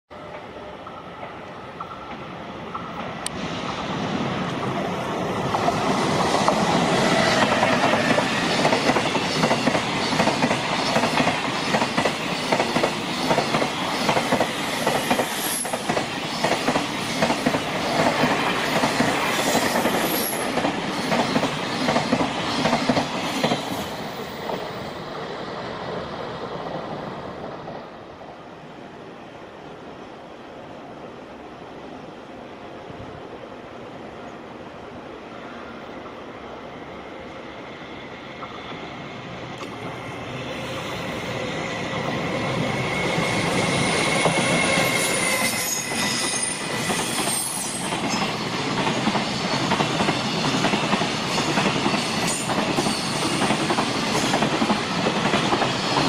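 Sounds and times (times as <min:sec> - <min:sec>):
freight train passing: 0:00.1 - 0:56.0
high wheel squeals: 0:42.6 - 0:48.3.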